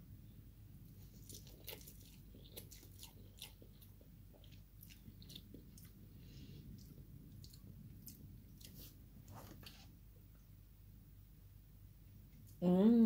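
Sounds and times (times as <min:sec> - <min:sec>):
person chewing noodles: 0:01.0 - 0:09.9.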